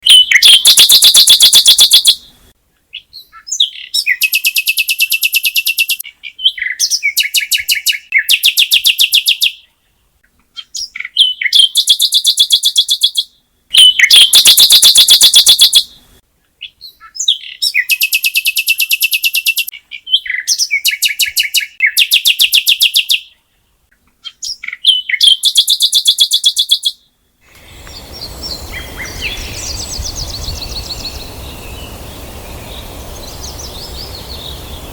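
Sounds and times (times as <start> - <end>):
songbird rapid trills: 0.0 - 2.2, 13.8 - 15.8, 27.5 - 34.9
outdoor ambience hiss: 0.0 - 34.9.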